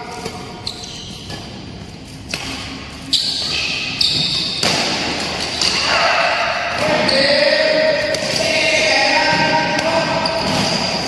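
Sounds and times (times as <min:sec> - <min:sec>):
rackets striking shuttlecock: 0:00.1 - 0:08.5.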